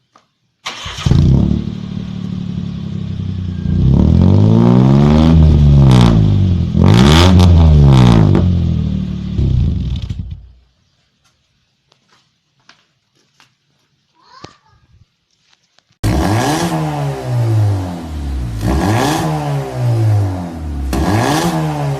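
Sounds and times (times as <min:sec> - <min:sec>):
engine exhaust idling and revving: 0:01.0 - 0:10.6, 0:16.0 - 0:21.9.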